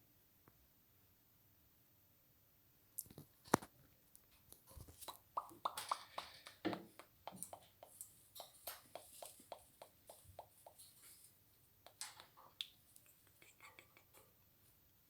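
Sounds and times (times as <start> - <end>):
faint sharp clicks and taps: 3.0 - 15.0.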